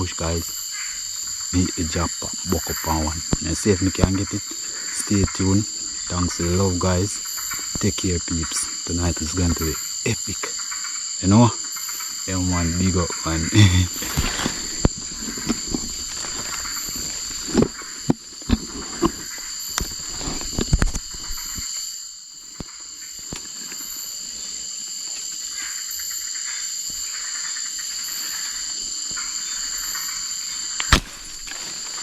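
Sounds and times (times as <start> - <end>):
crickets chirping: 0.0 - 32.0
knocks and rustles: 14.0 - 21.6.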